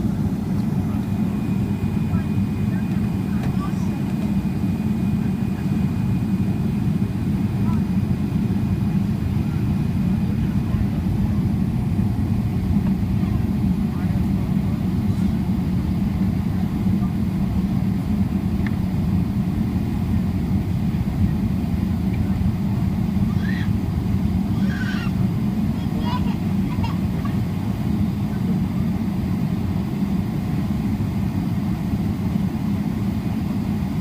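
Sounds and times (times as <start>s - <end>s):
airplane engines and airflow rumble: 0.0s - 34.0s
faint voices: 0.5s - 18.2s, 20.4s - 29.6s.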